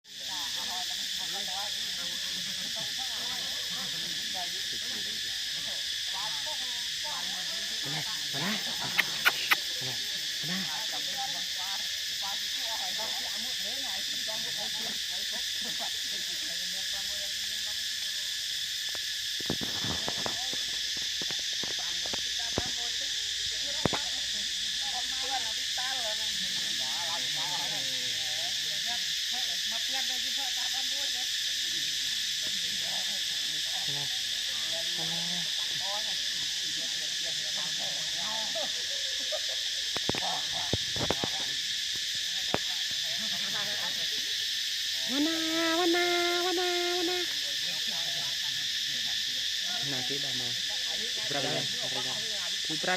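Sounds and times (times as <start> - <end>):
insect chorus buzzing: 0.0 - 52.9
cluster of clicks: 8.8 - 9.7, 18.8 - 22.8, 23.8 - 24.1, 39.9 - 43.0
faint wavering calls: 45.0 - 47.4.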